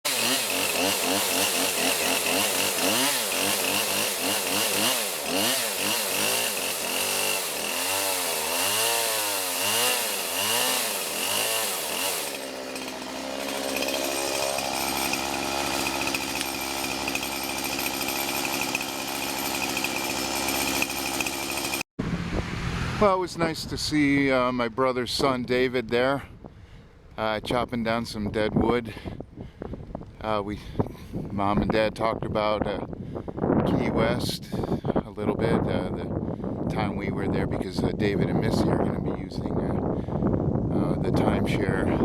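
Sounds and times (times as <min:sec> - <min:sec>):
chainsaw cutting wood: 0:00.1 - 0:21.9.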